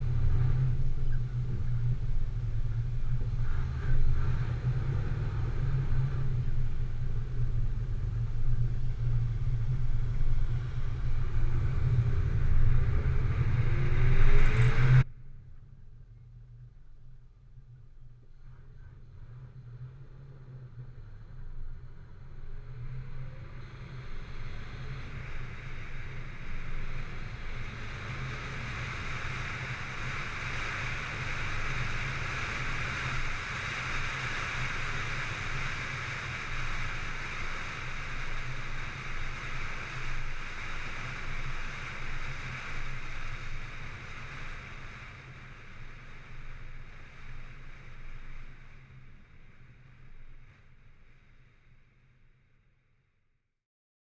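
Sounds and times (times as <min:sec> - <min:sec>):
engine throbbing: 0:00.0 - 0:15.0
rushing noise: 0:00.0 - 0:15.1, 0:23.4 - 0:50.6.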